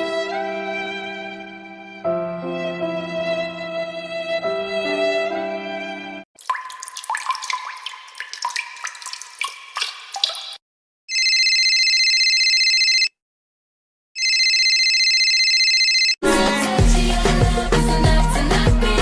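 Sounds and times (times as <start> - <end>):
music: 0.0 - 6.2, 16.2 - 19.0
water dripping plinks: 6.4 - 10.6.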